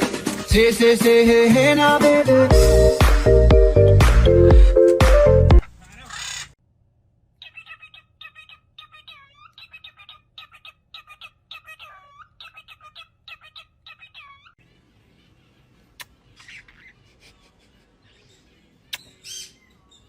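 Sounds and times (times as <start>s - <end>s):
parrot squawky chirping: 5.6s - 6.6s, 7.4s - 20.0s.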